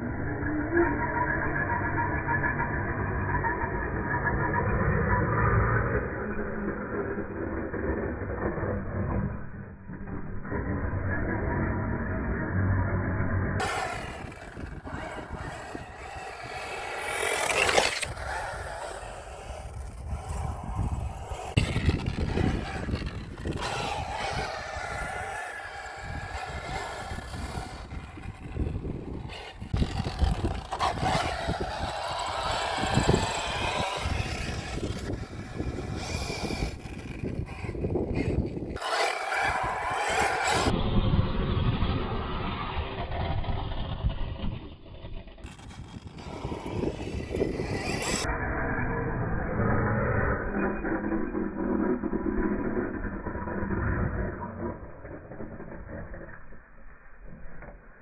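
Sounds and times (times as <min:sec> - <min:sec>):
tyres scraping rough ground: 0:13.6 - 0:48.7
electric motor whine: 0:13.6 - 0:54.2.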